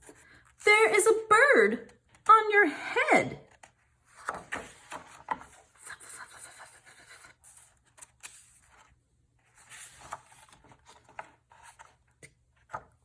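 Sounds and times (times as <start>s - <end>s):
paper book page turning: 3.5s - 13.0s.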